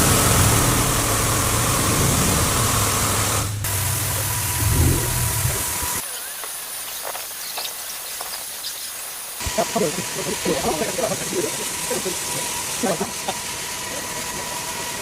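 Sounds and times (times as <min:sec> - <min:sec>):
low motor hum: 0:00.0 - 0:06.0, 0:09.4 - 0:15.0
water spraying hiss: 0:00.0 - 0:15.0.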